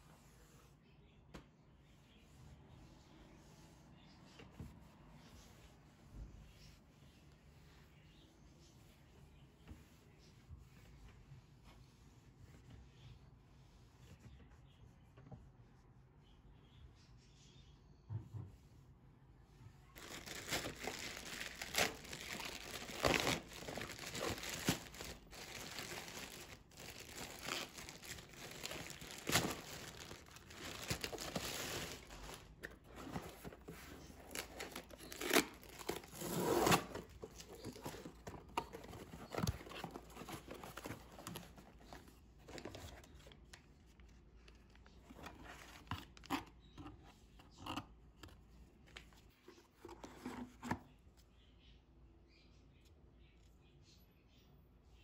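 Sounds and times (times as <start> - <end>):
material crinkling and rustling: 20.0 - 46.6.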